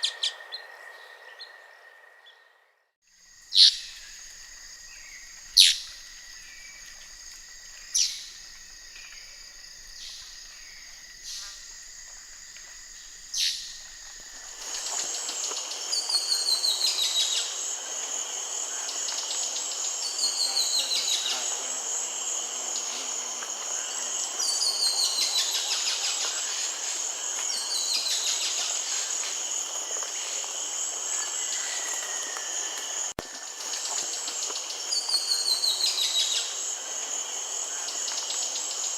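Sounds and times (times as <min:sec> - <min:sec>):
wild birdsong: 0:00.0 - 0:17.8, 0:18.4 - 0:23.2, 0:23.8 - 0:38.9
insect chorus: 0:00.0 - 0:38.9
sharp bird calls: 0:03.5 - 0:04.1, 0:05.0 - 0:06.0.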